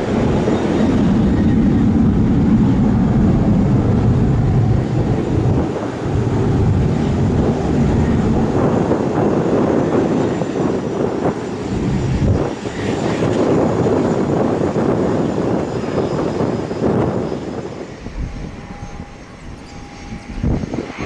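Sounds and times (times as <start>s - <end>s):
airliner engines roaring: 0.0s - 21.0s
wind buffeting microphone: 0.0s - 21.0s.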